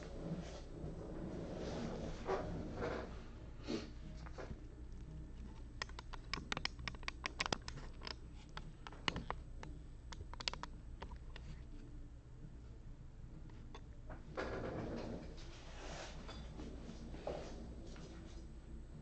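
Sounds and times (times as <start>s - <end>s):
low steady hum: 0.0s - 19.0s
small objects clicking and tapping: 5.6s - 11.4s.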